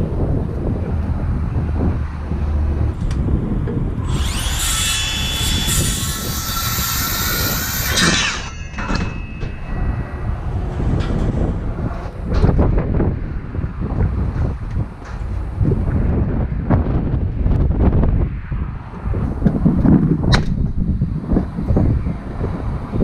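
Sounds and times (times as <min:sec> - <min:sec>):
wind buffeting microphone: 0:00.0 - 0:23.0
power tool running: 0:04.0 - 0:10.0.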